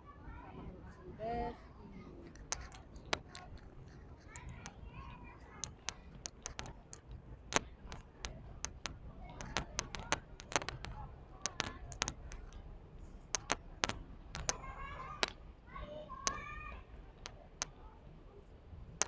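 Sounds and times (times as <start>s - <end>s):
faint background voices: 0.0s - 19.0s
sharp clicks and taps: 2.2s - 15.4s, 16.2s - 17.8s.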